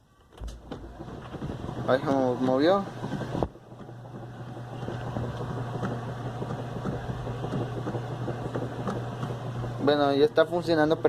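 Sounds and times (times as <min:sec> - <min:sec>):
washing machine motor hum: 0:00.0 - 0:11.0.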